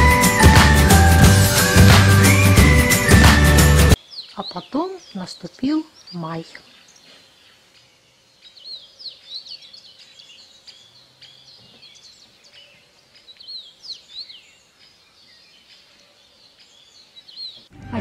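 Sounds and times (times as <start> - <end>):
small birds chirping: 3.8 - 18.0.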